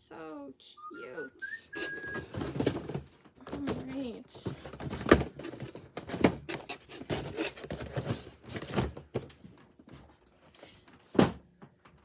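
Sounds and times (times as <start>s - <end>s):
cardboard packaging rustling and tearing: 1.8s - 3.7s, 4.4s - 9.4s.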